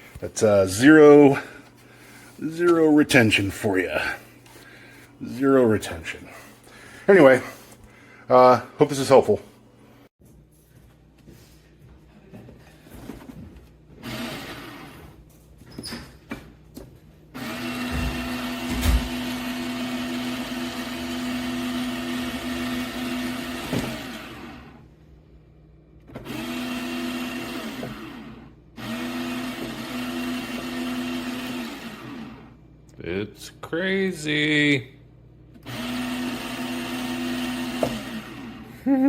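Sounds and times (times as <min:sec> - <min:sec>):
coffee grinder motor running: 0:14.0 - 0:15.0, 0:17.4 - 0:24.8, 0:26.1 - 0:32.5, 0:35.6 - 0:38.9.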